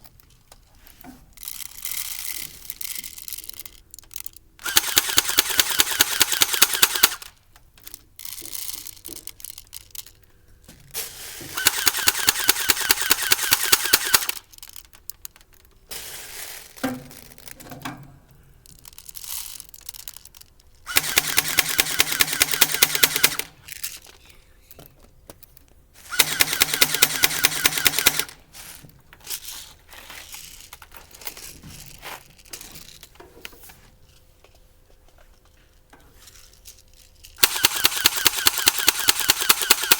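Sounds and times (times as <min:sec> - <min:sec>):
airsoft gun firing bursts: 0:04.6 - 0:07.3, 0:11.5 - 0:14.5, 0:20.9 - 0:23.6, 0:26.0 - 0:28.4, 0:37.4 - 0:39.9.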